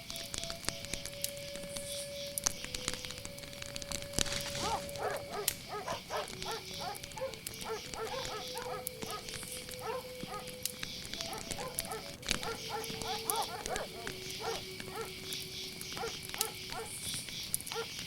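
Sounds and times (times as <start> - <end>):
campfire crackling and popping: 0.0 - 18.0
crickets chirping: 0.0 - 18.0
dogs barking: 4.4 - 18.0
long drawn-out dog calls: 4.5 - 10.6, 11.2 - 15.2, 15.9 - 17.0, 17.7 - 18.0.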